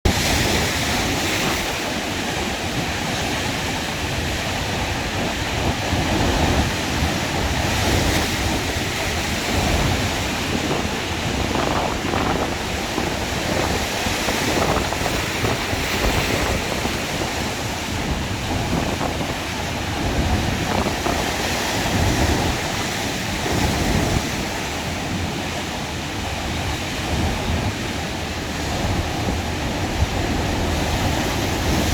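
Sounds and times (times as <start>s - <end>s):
sea waves washing on shore: 0.1s - 31.9s
wind buffeting microphone: 0.1s - 31.9s.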